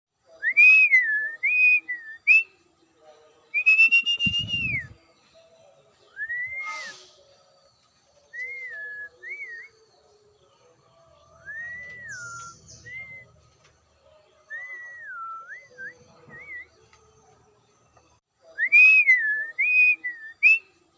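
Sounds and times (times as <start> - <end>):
bird whistling: 3.6 - 5.0, 6.1 - 7.2, 8.3 - 9.8, 11.4 - 13.4.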